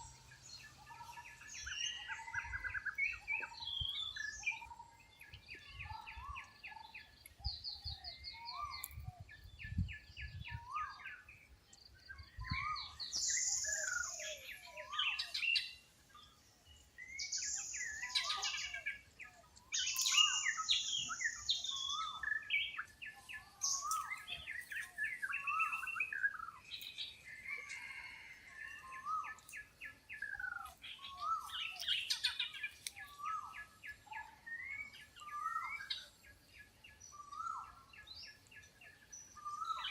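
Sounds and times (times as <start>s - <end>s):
birds calling and singing: 0.0s - 39.9s.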